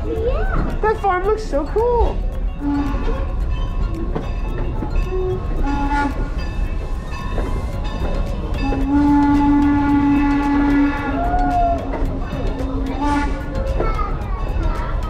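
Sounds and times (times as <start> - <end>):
passenger train rumbling: 0.0 - 15.0
rails clicking: 0.0 - 15.0
train horn blasts: 2.6 - 3.2, 5.1 - 6.4, 8.6 - 11.2, 13.0 - 13.5.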